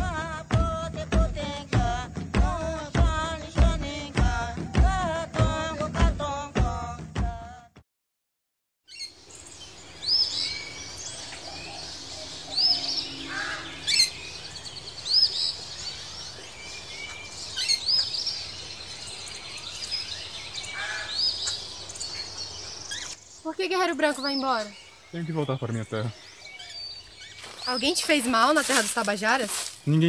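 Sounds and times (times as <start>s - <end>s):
woodland birds calling: 8.9s - 30.0s.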